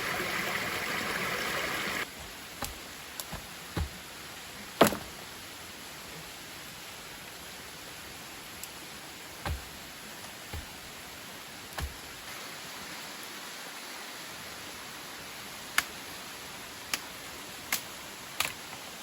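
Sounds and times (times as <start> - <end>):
waterfall rushing: 0.0 - 2.4.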